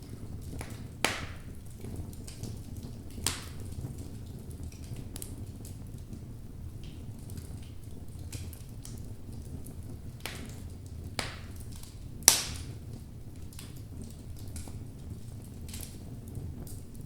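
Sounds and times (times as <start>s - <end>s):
burning logs crackling and popping: 0.0s - 17.0s
low rumble of flames: 0.0s - 17.0s.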